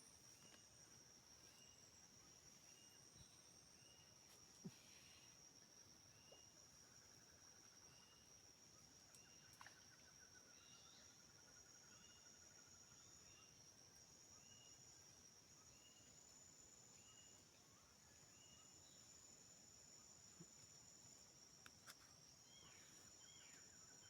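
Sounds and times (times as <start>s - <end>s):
insect drone: 0.0s - 24.0s
short insect chirps: 0.0s - 24.0s
rattling insect trill: 5.2s - 24.0s.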